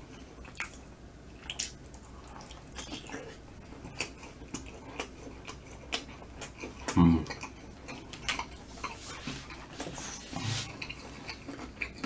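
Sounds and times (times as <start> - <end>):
mouth chewing wetly: 0.1 - 10.0, 10.6 - 12.0.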